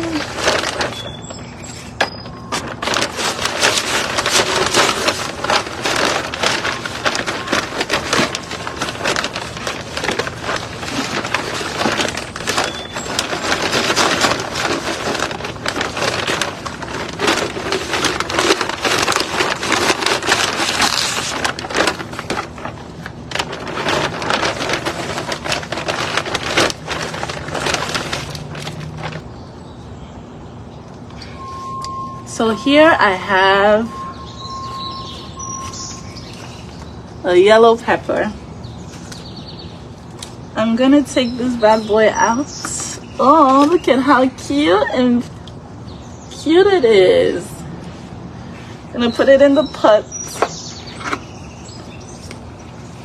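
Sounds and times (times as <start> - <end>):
plant pots clicking: 0.0 - 29.3
soil rustling and crackling: 0.0 - 29.4.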